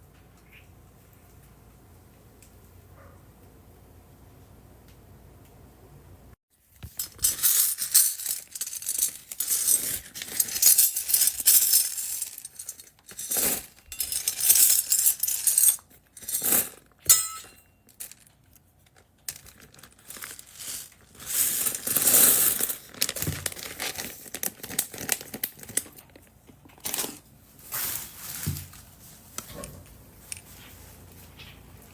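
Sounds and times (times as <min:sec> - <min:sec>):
plastic bags rustling: 0:06.8 - 0:16.8, 0:18.9 - 0:31.9
plastic beads rattling: 0:06.8 - 0:16.8, 0:19.3 - 0:26.0.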